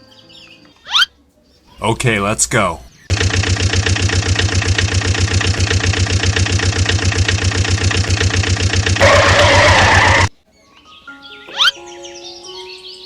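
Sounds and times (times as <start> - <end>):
tractor engine chugging: 1.8 - 10.3.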